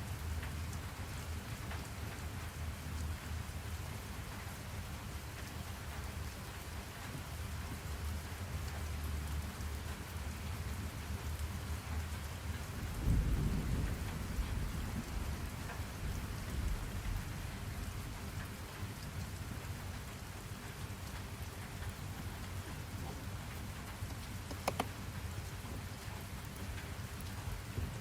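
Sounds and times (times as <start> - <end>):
steady rain falling: 0.0 - 28.0
low rolling thunder: 12.8 - 18.4.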